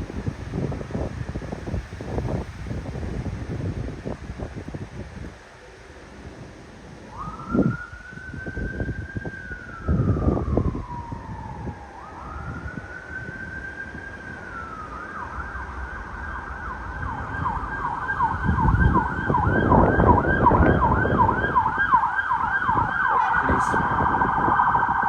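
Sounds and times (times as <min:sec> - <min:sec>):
wind rumble on microphone: 0:00.0 - 0:25.0
police siren wailing and yelping: 0:07.0 - 0:25.0.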